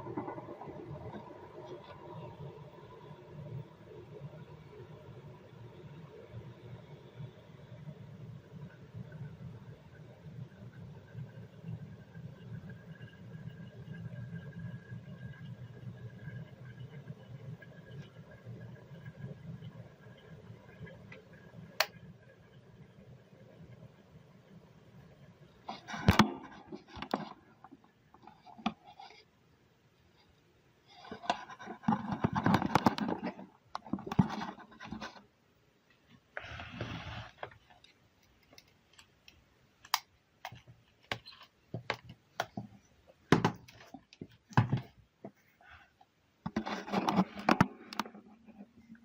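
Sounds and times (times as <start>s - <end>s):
handling scraping and rubbing: 30.2s - 35.4s, 36.1s - 39.2s, 40.5s - 48.9s.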